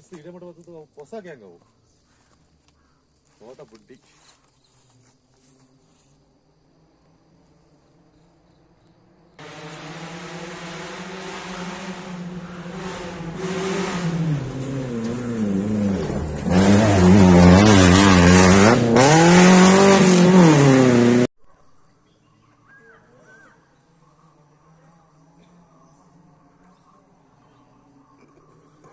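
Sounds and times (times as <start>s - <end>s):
rally car engine revving: 9.4s - 21.3s.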